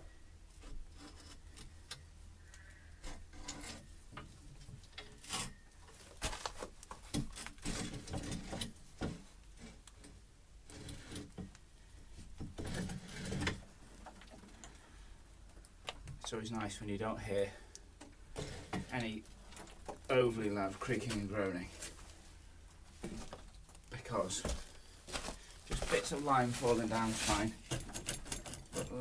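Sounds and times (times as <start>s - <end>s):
timber knocking and scraping: 3.0s - 11.6s, 12.2s - 14.5s, 18.4s - 22.0s, 22.9s - 23.5s, 24.1s - 29.0s.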